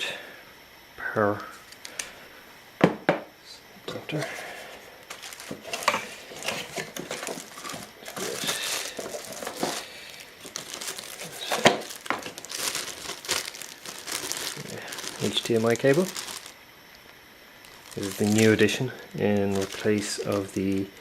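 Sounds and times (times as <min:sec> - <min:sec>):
plastic packaging crinkling: 0:01.6 - 0:02.2, 0:04.6 - 0:21.0
sharp crackles and clicks: 0:05.1 - 0:18.5.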